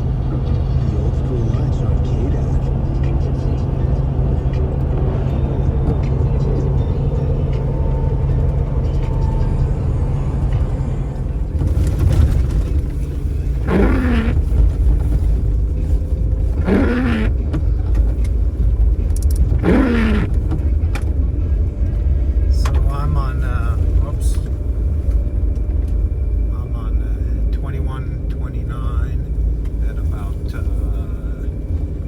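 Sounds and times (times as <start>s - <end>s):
vehicle road and engine rumble: 0.0s - 32.0s
short squeaking sweep: 11.9s - 14.6s, 16.6s - 17.4s, 19.6s - 20.4s.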